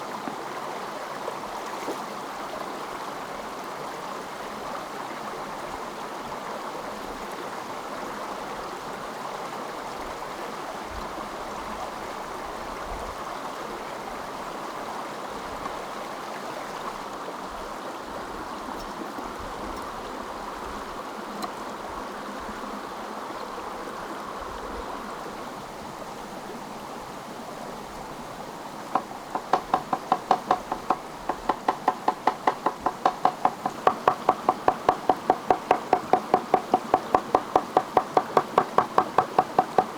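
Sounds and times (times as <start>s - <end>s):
stream flowing: 0.0s - 39.9s
rapid even knocking: 29.0s - 39.9s.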